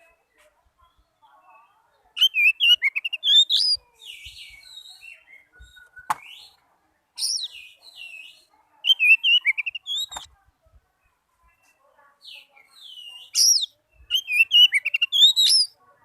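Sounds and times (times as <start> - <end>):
bird singing with chirps and whistles: 0.8 - 6.6, 7.2 - 10.3, 12.3 - 15.8
sharp click: 10.1 - 10.3.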